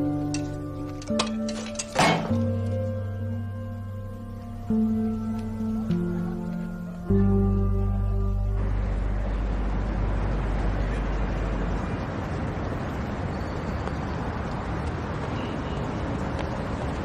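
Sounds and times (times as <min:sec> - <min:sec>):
traffic hiss and rumble: 0:00.0 - 0:17.0
low held tone: 0:02.4 - 0:11.8.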